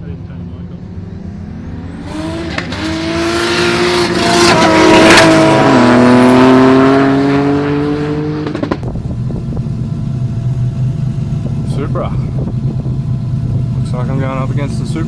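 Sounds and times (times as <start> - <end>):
race car passing by: 0.1 - 8.8.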